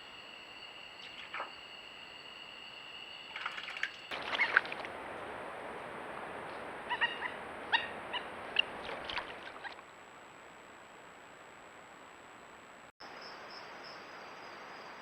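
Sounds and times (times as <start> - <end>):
short pitched animal calls: 6.8 - 9.8.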